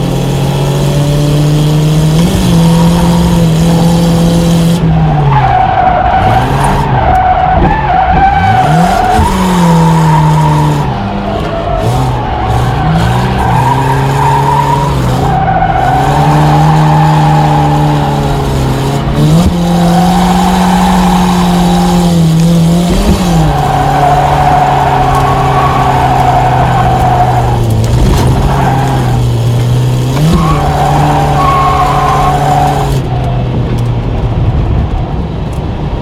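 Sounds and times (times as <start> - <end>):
car engine at high revs: 0.0 - 36.0
tyres squealing: 22.9 - 33.2.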